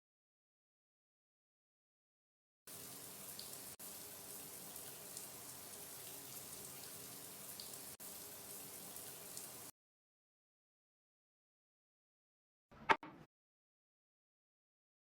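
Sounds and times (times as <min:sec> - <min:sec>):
running water hiss: 0:02.7 - 0:09.7.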